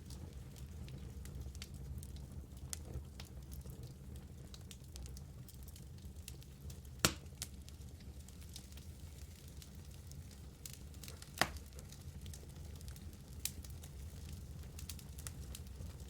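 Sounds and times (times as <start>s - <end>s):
flames rumbling: 0.0s - 16.0s
light crackling: 0.0s - 16.0s
sharp pops of fire: 6.9s - 7.6s, 10.6s - 13.8s.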